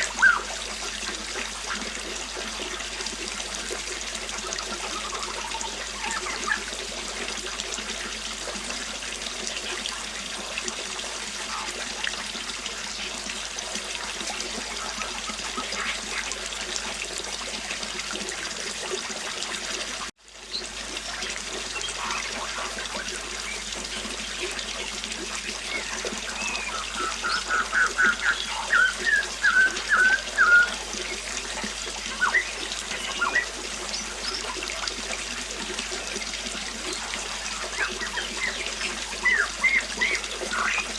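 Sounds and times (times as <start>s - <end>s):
birds chirping: 0.0s - 1.1s, 4.5s - 6.7s, 21.7s - 34.9s, 36.9s - 40.9s
river water running: 0.0s - 40.9s.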